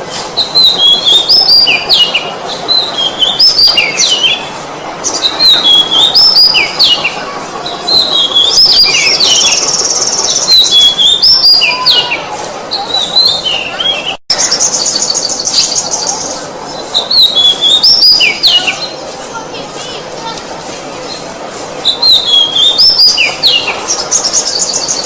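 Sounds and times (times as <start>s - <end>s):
bird buzzy trill: 0.2s - 19.5s, 21.0s - 25.0s
bird singing whistled phrases: 0.4s - 7.0s, 7.9s - 12.2s, 17.0s - 19.0s, 21.8s - 25.0s.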